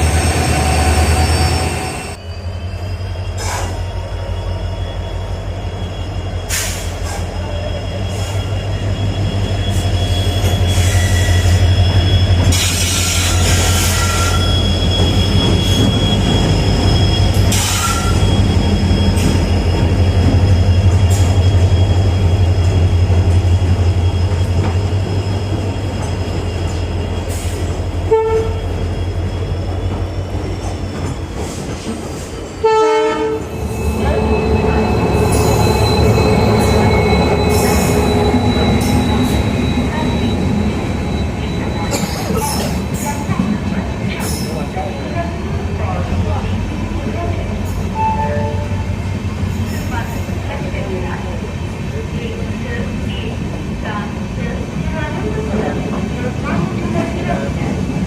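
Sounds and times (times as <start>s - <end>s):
wheel squeal: 0.0s - 32.7s, 33.4s - 45.6s
train rumbling: 0.0s - 58.0s.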